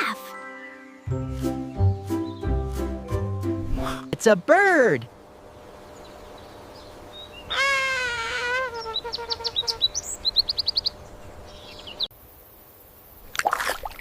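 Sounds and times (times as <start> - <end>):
bird long wavering call: 7.5 - 8.6.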